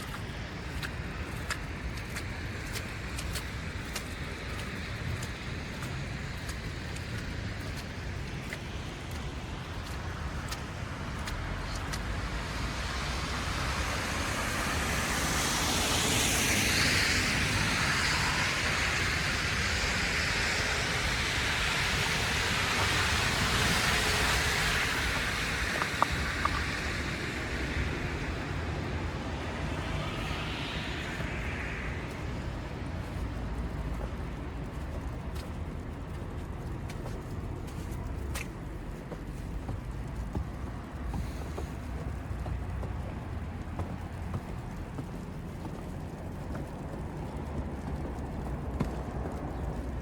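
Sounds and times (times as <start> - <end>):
car tyres hissing past: 12.8 - 32.6.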